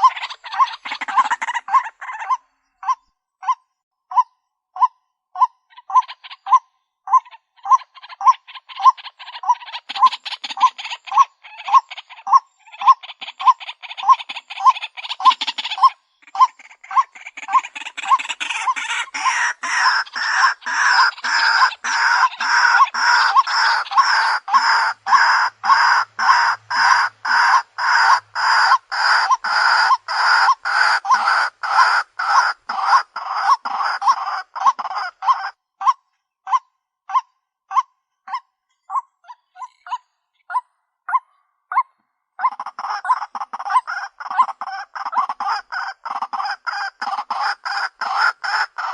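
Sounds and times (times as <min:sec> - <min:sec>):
waterhen harsh calls: 0:00.0 - 0:04.2, 0:04.8 - 0:37.8, 0:42.4 - 0:48.9.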